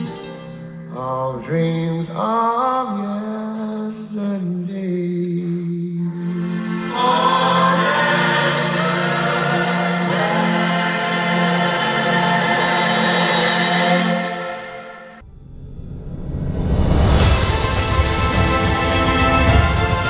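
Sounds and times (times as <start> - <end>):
choir-like singing music: 5.7 - 15.2, 16.6 - 20.0.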